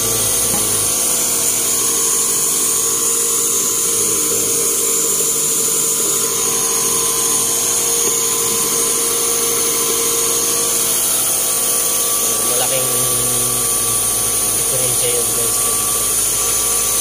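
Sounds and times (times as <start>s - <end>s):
car engine running: 0.0s - 6.5s
constant engine whine: 0.0s - 17.0s.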